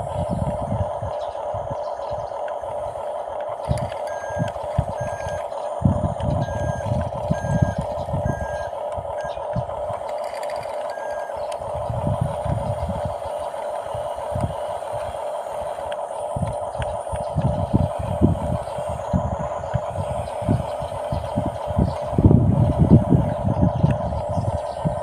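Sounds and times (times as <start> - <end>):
toy bulldozer mechanical hum: 0.0 - 25.0
reversing beeper beeps: 3.8 - 5.6, 6.4 - 9.5, 10.8 - 11.4.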